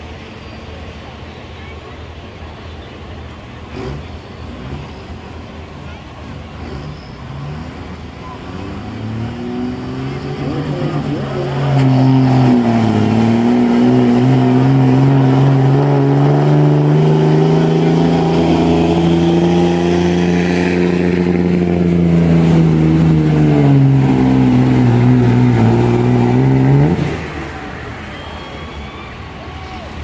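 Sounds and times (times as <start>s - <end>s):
truck engine at high revs: 3.2s - 29.4s.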